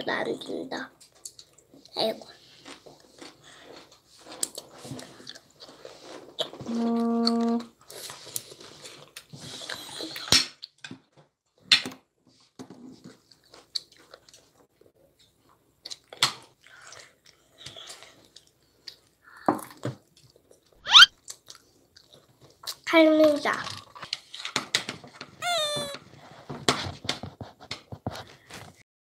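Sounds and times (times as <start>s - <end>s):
child chewing: 1.0s - 10.9s, 12.8s - 22.9s, 23.8s - 26.4s
brief rising squeak: 20.8s - 21.1s.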